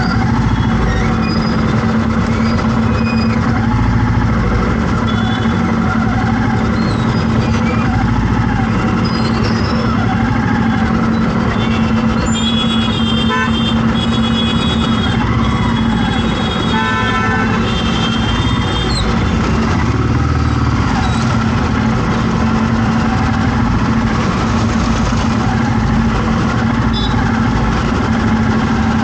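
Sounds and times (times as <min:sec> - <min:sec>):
traffic engines running: 0:00.0 - 0:29.0
vehicle horns honking: 0:05.0 - 0:05.7, 0:11.4 - 0:19.4, 0:26.9 - 0:27.4.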